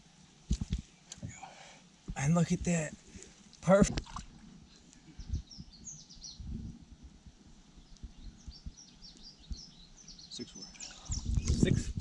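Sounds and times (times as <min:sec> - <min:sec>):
small birds chirping: 0:04.5 - 0:12.0.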